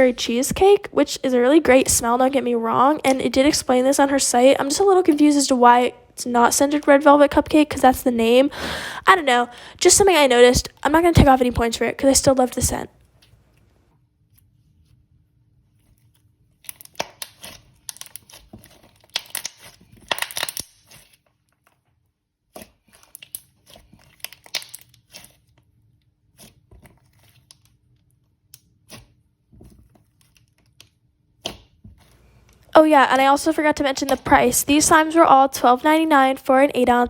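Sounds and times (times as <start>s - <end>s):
slime squished by hand: 15.8s - 21.7s, 22.4s - 32.5s.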